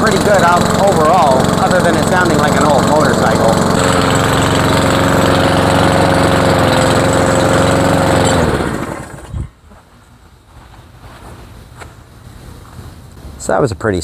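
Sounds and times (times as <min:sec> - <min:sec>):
mower engine idling roughly: 0:00.0 - 0:09.3
engine winding down with thump: 0:00.0 - 0:09.4.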